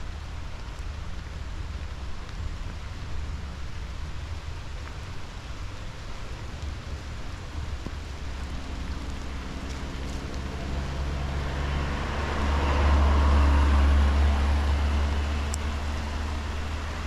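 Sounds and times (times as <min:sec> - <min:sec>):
vehicle engine hum: 0:05.0 - 0:17.0
outdoor rushing rumble: 0:06.5 - 0:17.0.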